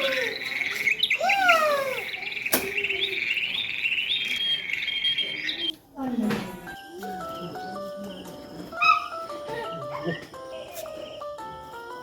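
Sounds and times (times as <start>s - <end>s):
rising and falling bird call: 0.0s - 5.7s
small birds chirping: 0.0s - 5.8s, 7.1s - 12.0s.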